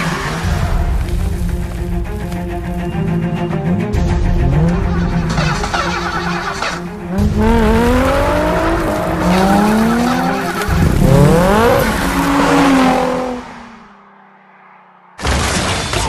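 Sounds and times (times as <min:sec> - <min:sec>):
tires squealing: 0:00.0 - 0:01.8, 0:02.6 - 0:14.8
car engine revving hard: 0:07.0 - 0:13.9.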